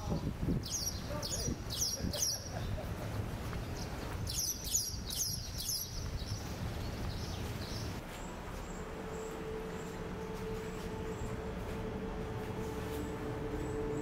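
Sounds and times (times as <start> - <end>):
low outdoor rumble: 0.0 - 14.0
bird chirping: 0.1 - 2.7, 3.6 - 11.4.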